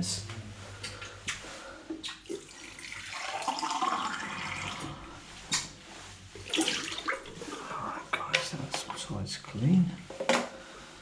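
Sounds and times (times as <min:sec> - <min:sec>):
water running and splashing: 0:02.0 - 0:05.1, 0:06.3 - 0:08.0.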